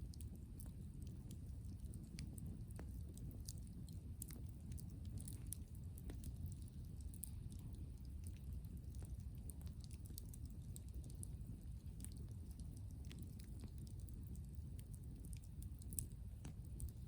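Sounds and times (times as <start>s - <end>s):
bonfire crackling and popping: 0.0s - 17.0s.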